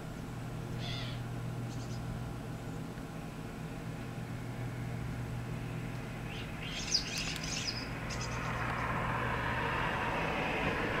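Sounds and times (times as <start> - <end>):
steady low hum: 0.0 - 11.0
high bird chirps and clicks: 6.3 - 8.8
rushing noise: 7.9 - 11.0.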